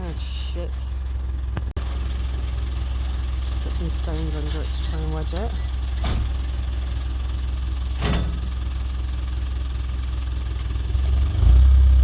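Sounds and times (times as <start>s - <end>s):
truck engine idling: 0.0s - 12.0s
engine revving: 10.7s - 12.0s.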